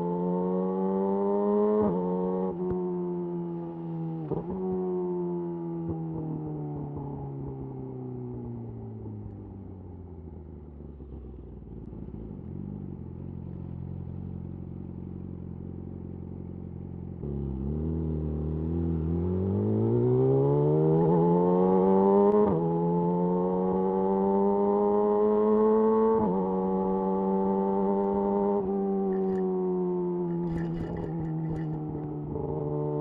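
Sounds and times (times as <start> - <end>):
motorcycle engine accelerating: 8.4 - 33.0.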